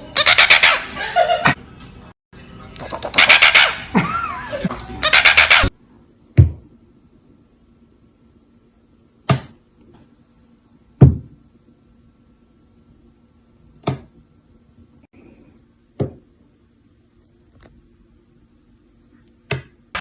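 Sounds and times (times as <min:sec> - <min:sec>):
faint steady hum: 0:05.7 - 0:20.0.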